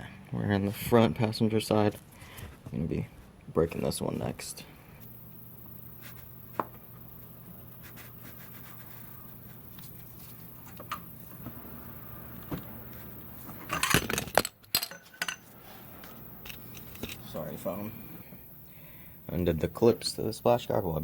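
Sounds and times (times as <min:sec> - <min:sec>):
tools clattering: 0:13.5 - 0:17.4.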